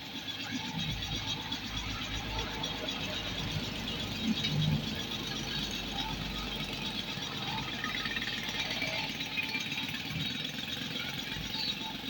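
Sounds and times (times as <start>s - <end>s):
motorcycle engine idling: 3.3s - 12.0s.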